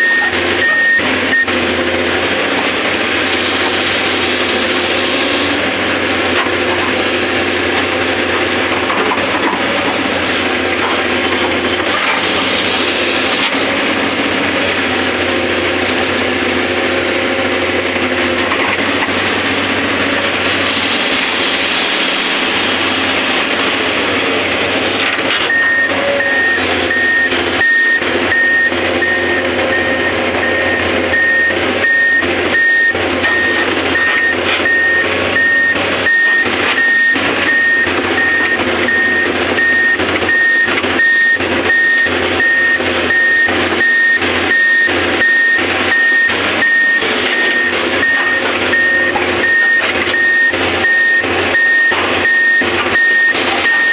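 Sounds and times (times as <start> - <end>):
reversing alarm beeping: 0.0 - 2.1, 22.4 - 53.9
excavator engine and hydraulic drone: 0.0 - 53.9.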